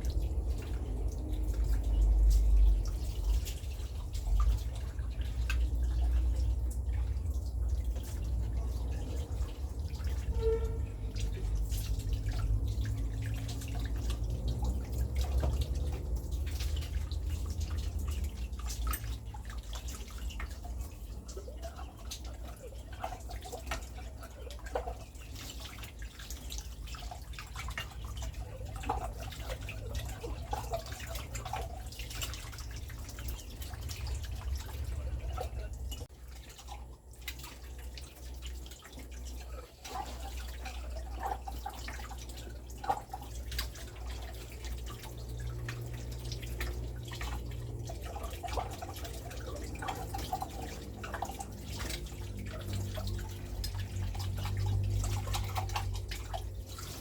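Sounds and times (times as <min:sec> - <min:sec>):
water dripping and splashing: 0:00.0 - 0:57.0.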